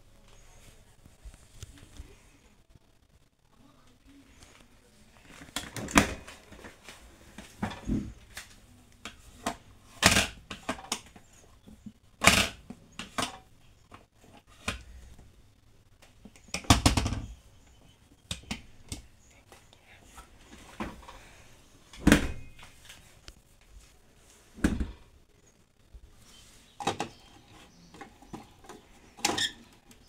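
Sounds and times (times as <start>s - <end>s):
rustling: 18.7s - 30.0s.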